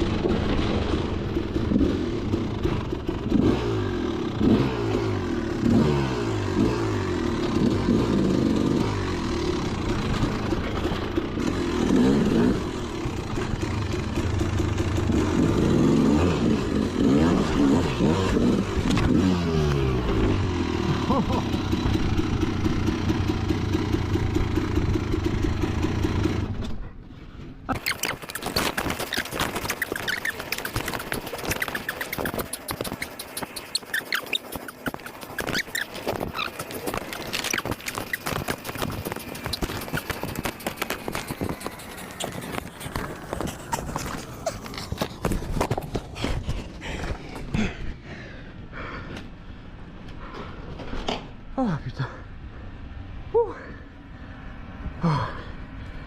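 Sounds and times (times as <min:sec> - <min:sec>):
dirt-bike engine revving: 0:00.0 - 0:26.6, 0:27.7 - 0:45.8
scrapes and clatters: 0:27.1 - 0:47.5
clicking pattering noise: 0:27.7 - 0:47.2.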